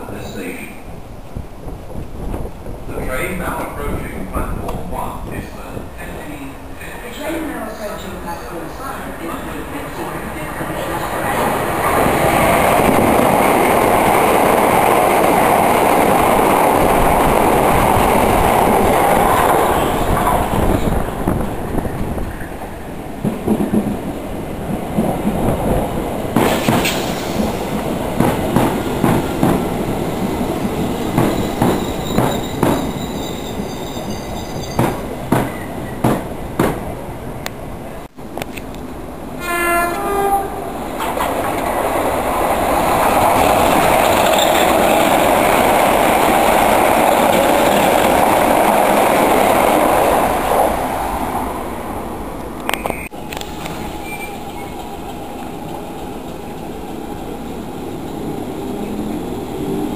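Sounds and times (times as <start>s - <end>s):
train rushing past at speed: 1.6s - 37.1s, 40.0s - 59.9s
train wheels clacking over rail joints: 26.3s - 29.7s, 31.1s - 33.2s, 34.4s - 36.8s.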